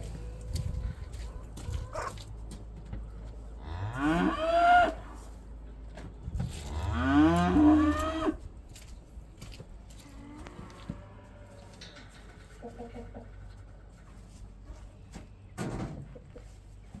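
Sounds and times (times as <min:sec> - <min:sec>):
cow mooing: 0:03.6 - 0:05.0, 0:06.6 - 0:08.4.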